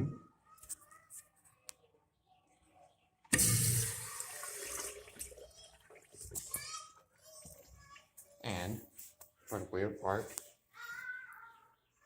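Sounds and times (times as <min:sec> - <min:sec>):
urinal flushing water rush: 0:03.3 - 0:06.2.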